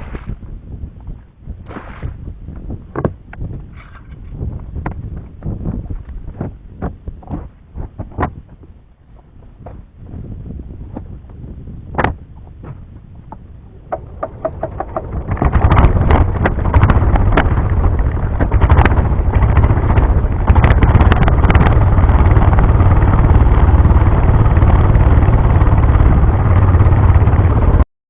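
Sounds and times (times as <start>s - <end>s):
small boat engine running: 12.4s - 27.8s
rapid clicks: 13.7s - 27.8s.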